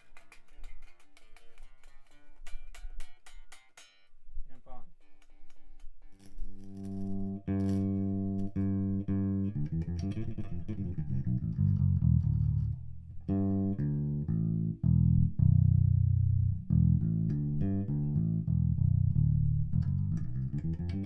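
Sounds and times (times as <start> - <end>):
electric bass guitar notes: 6.0 - 21.0.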